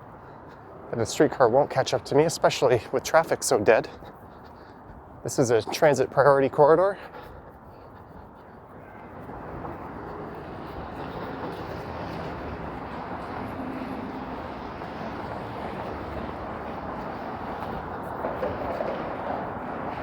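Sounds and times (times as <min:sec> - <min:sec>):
passing vehicle rumble: 0:08.8 - 0:20.0.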